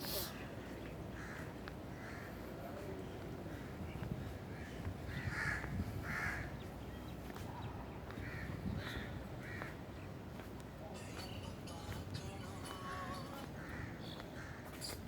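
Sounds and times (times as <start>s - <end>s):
crow cawing: 1.2s - 2.3s, 4.6s - 6.5s, 8.2s - 9.7s.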